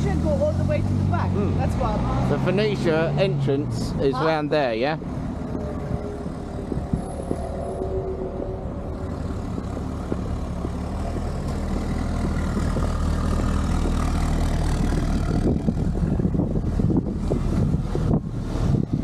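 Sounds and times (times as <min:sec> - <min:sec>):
car engine running: 0:00.0 - 0:19.0
road noise: 0:00.0 - 0:19.0.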